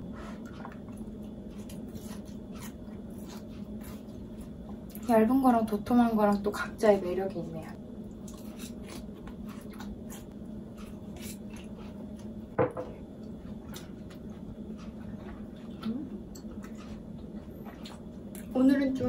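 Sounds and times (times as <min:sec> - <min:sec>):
crunchy chewing: 0:00.2 - 0:05.1, 0:08.0 - 0:12.5, 0:13.2 - 0:18.6.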